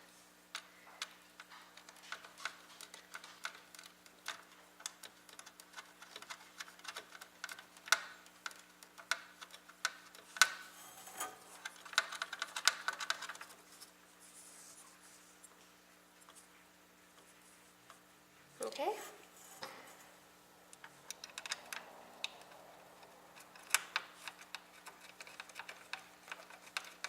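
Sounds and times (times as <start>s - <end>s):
faint steady hum: 0.0s - 27.0s
screws and metal parts clicking: 1.4s - 13.5s, 20.8s - 27.0s.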